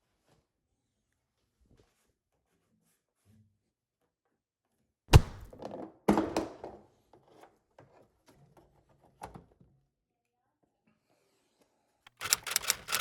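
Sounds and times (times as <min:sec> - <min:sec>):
loud thunks: 0:05.1 - 0:05.6
short rattle: 0:12.1 - 0:13.0.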